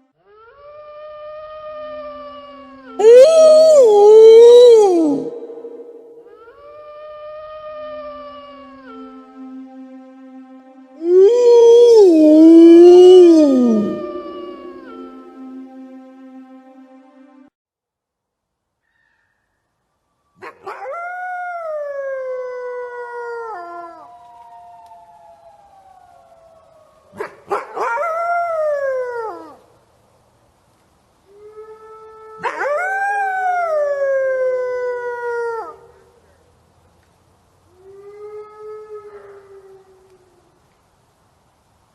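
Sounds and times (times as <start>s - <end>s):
wolf howling: 0.4s - 8.4s, 11.0s - 15.4s, 31.4s - 35.8s.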